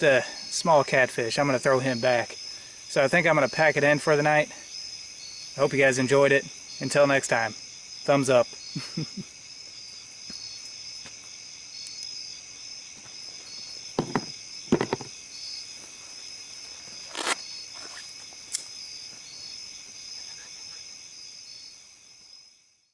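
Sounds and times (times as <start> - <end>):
crickets trilling: 0.0 - 22.9
sharp knocks and clatters: 14.0 - 15.1.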